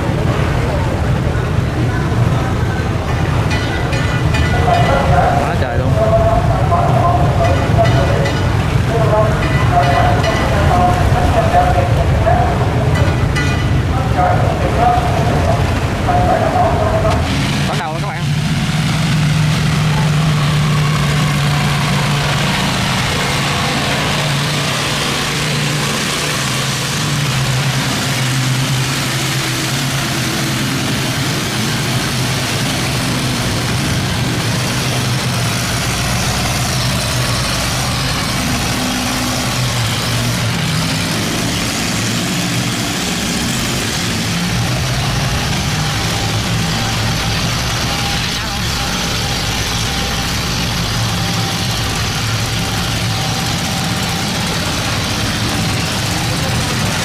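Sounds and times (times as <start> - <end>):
boat engines humming: 0.0 - 57.0
fast-flowing water rushing: 4.3 - 57.0.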